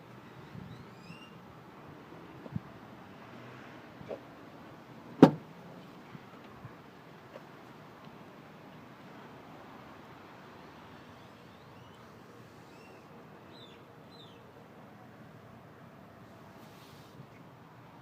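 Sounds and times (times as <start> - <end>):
outdoor background noise: 0.0 - 18.0
bird chirps: 12.6 - 14.4.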